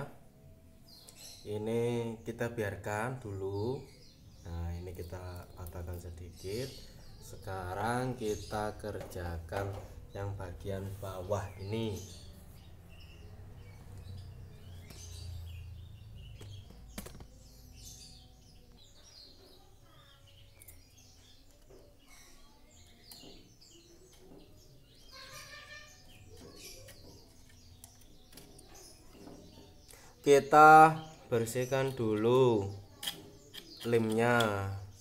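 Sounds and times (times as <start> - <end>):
small birds chirping: 0.0 - 35.0
metal blade scraping bird cage: 33.0 - 34.6.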